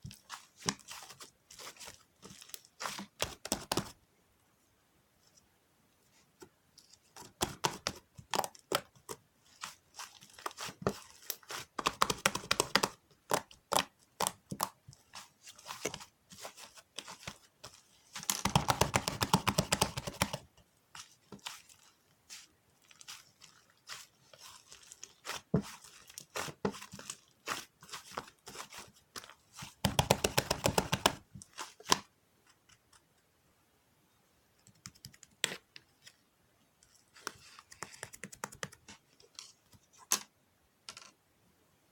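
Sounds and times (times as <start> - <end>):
paper and tape crinkling: 21.0 - 29.9.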